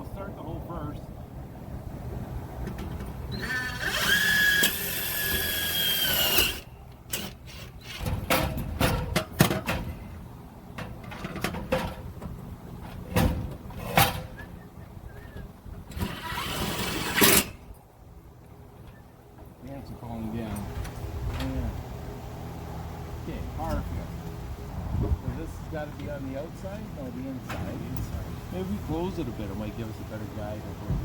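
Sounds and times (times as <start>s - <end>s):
power drill whining: 3.3s - 8.0s, 16.0s - 17.5s.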